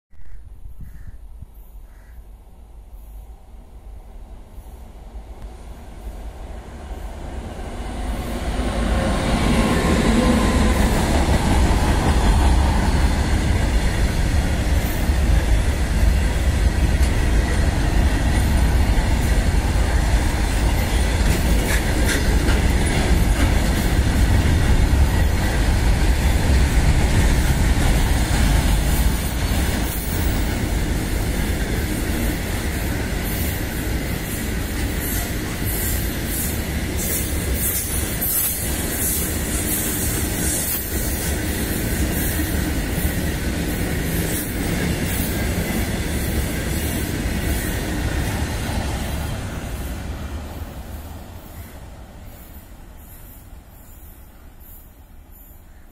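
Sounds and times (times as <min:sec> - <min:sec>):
electric locomotive passing: 0:02.6 - 0:55.9
wagon wheels clattering on rails: 0:20.9 - 0:27.3.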